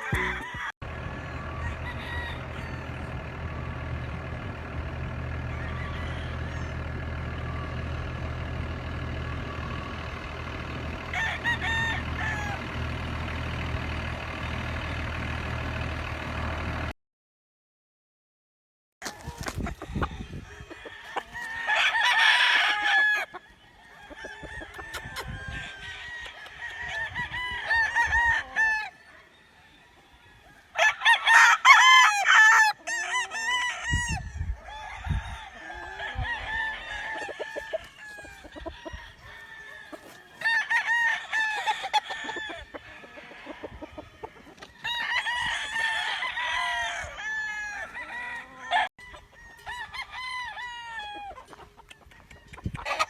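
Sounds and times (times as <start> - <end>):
chickens clucking: 0.0 - 15.0, 19.0 - 22.1, 22.7 - 27.1, 33.9 - 40.6, 41.4 - 47.1, 51.1 - 53.0
roosters crowing: 0.0 - 15.8, 19.0 - 53.0.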